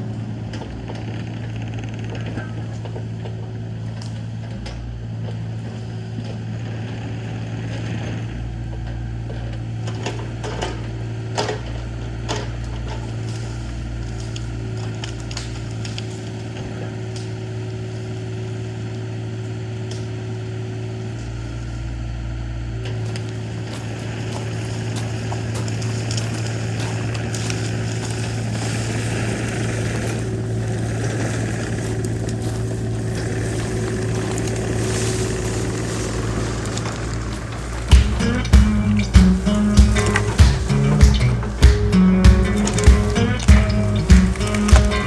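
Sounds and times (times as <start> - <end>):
heavy equipment engine rumbling: 0.0 - 45.0
sharp knocks: 37.9 - 45.0.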